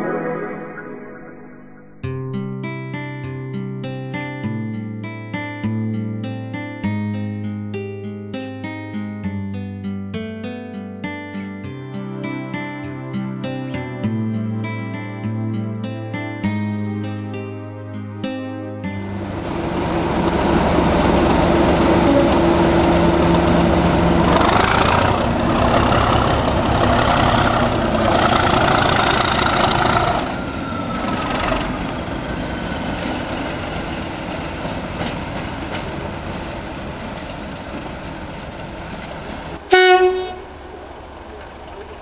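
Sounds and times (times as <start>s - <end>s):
diesel locomotive engine: 18.9s - 42.0s
locomotive horn blast: 19.2s - 25.2s, 39.6s - 40.8s.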